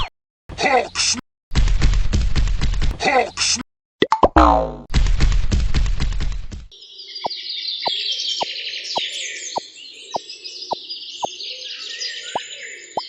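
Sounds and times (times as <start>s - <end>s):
small birds chirping: 6.8s - 13.0s.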